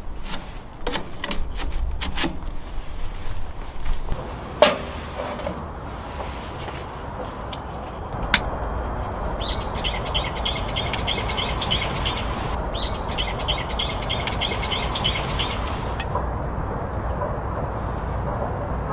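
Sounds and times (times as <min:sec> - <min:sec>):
low background noise: 0:00.0 - 0:18.9
bird singing repeated high notes: 0:08.7 - 0:15.7.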